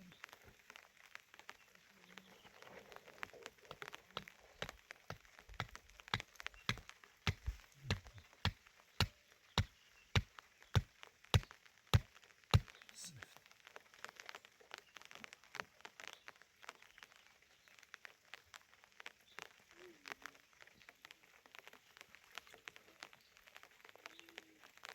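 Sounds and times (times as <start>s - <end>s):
chopping blows: 4.2s - 13.2s.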